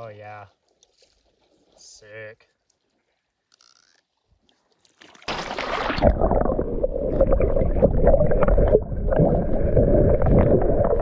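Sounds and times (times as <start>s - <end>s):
water sloshing and gurgling: 0.5s - 1.9s, 2.6s - 11.0s
small water splashes: 4.1s - 11.0s.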